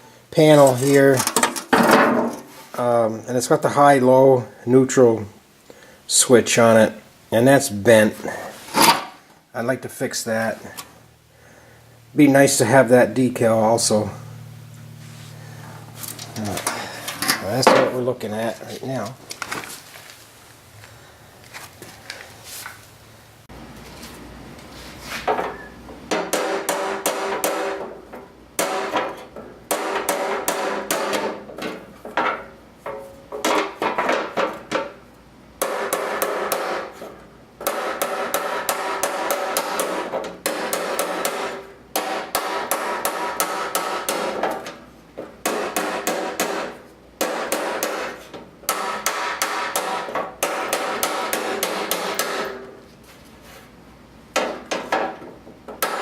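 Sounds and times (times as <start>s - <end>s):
welder crackling: 12.2s - 20.8s.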